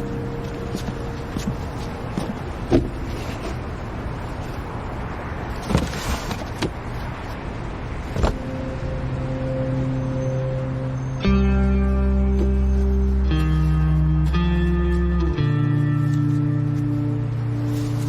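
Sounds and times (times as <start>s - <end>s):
soft music: 0.0s - 2.7s, 8.3s - 18.0s
car running: 0.0s - 18.0s.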